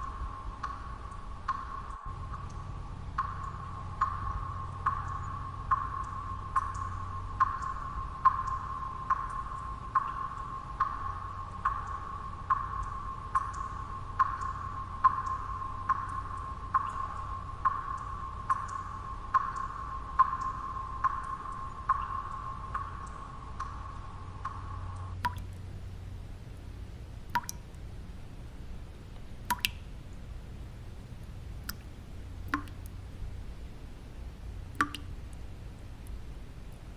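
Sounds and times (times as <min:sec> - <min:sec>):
steady low noise: 0:00.0 - 0:36.9
water drops plinking: 0:25.2 - 0:36.8.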